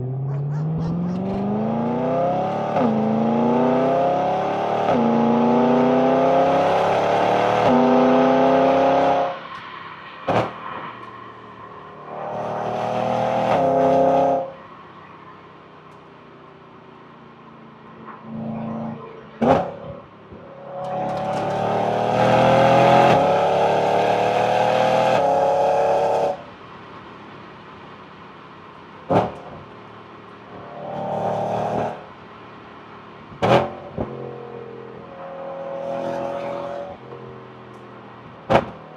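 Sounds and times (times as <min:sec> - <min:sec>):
car engine accelerating through gears: 0:00.0 - 0:15.2, 0:18.0 - 0:26.6, 0:29.0 - 0:38.9
exhaust cracks: 0:29.0 - 0:35.2.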